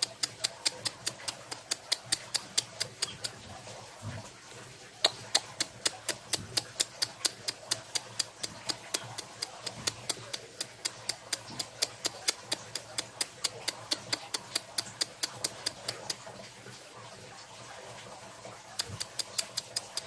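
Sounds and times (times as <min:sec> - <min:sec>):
sharp clicks: 0:00.0 - 0:03.6, 0:05.0 - 0:16.3, 0:18.7 - 0:20.0.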